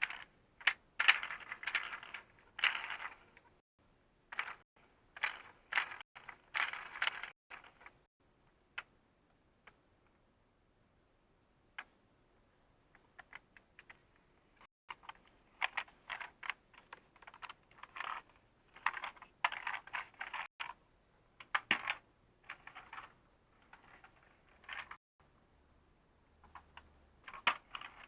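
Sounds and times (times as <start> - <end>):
plastic toy pieces clicking: 0.0 - 3.5, 4.3 - 4.6, 5.2 - 8.0, 14.9 - 20.8, 21.4 - 25.0, 26.4 - 28.0.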